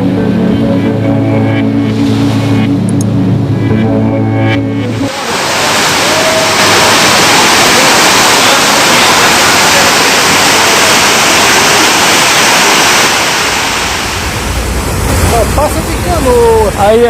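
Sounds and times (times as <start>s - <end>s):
rushing flood water: 5.0s - 17.0s.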